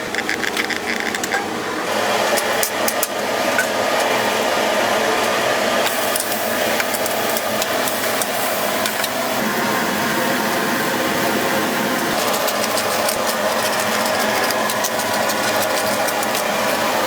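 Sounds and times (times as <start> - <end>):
metal utensils clicking: 12.0 - 17.0.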